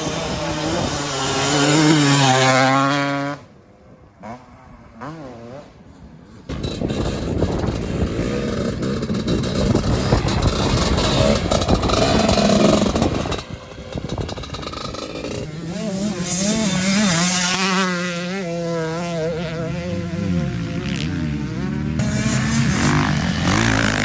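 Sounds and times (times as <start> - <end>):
two-stroke motocross engine revving: 0.0 - 3.4, 6.5 - 24.0
buzzing two-stroke engine: 6.5 - 24.0.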